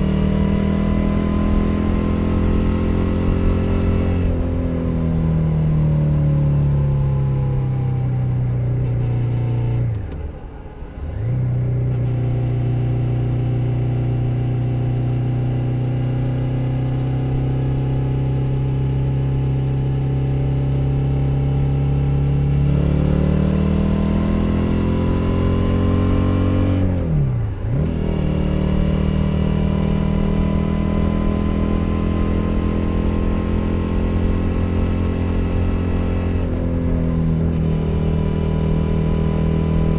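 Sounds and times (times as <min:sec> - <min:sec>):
motorcycle engine running: 0:11.6 - 0:39.9.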